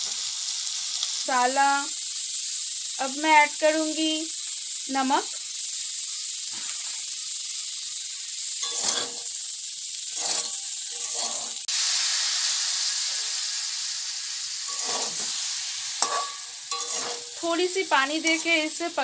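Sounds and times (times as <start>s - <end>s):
vegetables sizzling in pan: 0.0s - 19.0s
metal spatula scraping pan: 8.6s - 9.3s, 10.1s - 11.7s, 14.7s - 15.4s, 16.0s - 17.5s, 18.2s - 18.8s.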